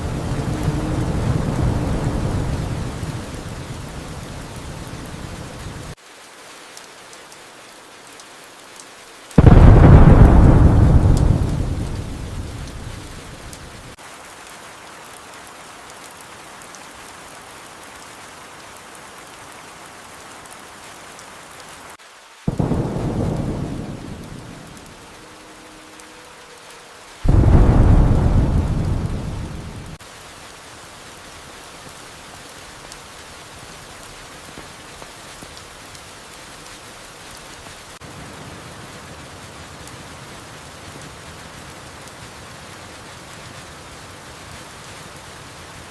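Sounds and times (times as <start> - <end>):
thunder rumbling: 0.0 - 6.0, 9.4 - 14.0, 22.5 - 26.2, 27.2 - 30.0
steady rain: 0.0 - 45.9.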